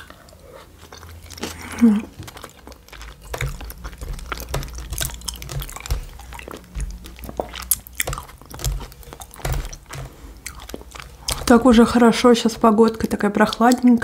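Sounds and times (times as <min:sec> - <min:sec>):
chewing and biting food: 0:00.0 - 0:14.0.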